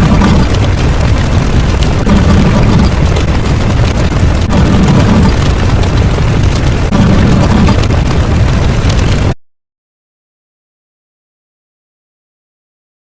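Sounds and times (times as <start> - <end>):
loud distorted explosions: 0.0 - 9.4.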